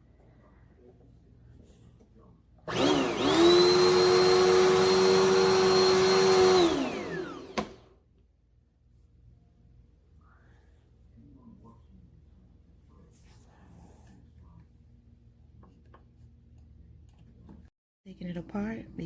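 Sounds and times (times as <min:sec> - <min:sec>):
vacuum cleaner motor whine: 0:02.6 - 0:08.0.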